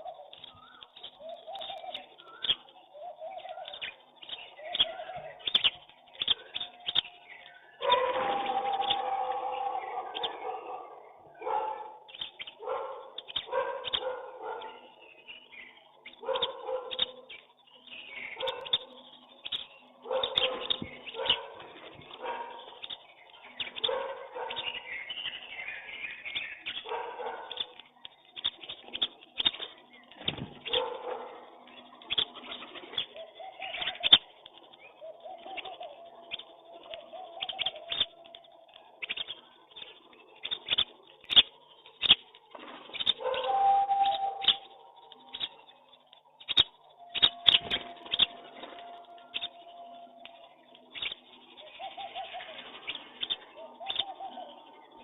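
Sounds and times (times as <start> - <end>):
pigeons cooing: 0.0 - 15.2, 19.9 - 22.8, 29.0 - 45.6, 46.5 - 55.0
chirps and clicks: 0.0 - 55.0.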